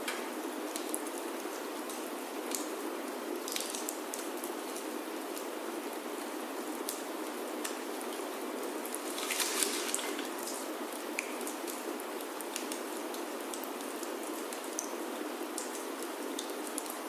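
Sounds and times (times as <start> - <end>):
rain on a wooden roof: 0.0 - 17.0
wood fire crackling: 3.4 - 17.0.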